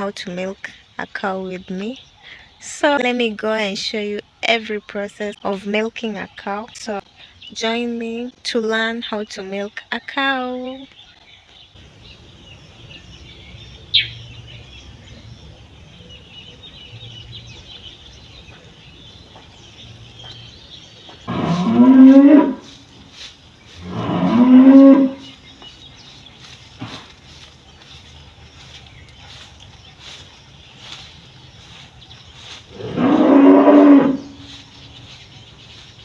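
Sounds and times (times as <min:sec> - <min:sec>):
faint bird chirps: 0:09.1 - 0:36.0
cow mooing: 0:21.3 - 0:22.7, 0:23.8 - 0:25.4, 0:32.7 - 0:34.5.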